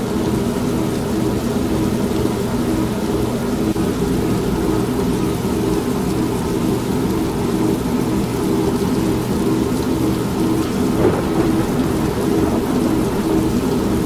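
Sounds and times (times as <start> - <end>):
steady rain: 10.6 - 14.0
thunder rumbling: 10.6 - 14.0
washing machine droning: 10.6 - 14.0.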